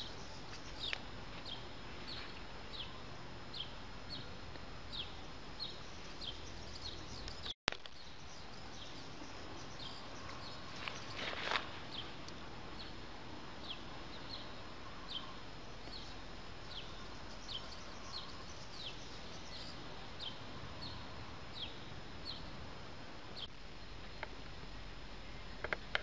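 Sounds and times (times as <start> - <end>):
steady outdoor hiss: 0.0 - 26.0
songbird high downward chirp: 13.6 - 22.5.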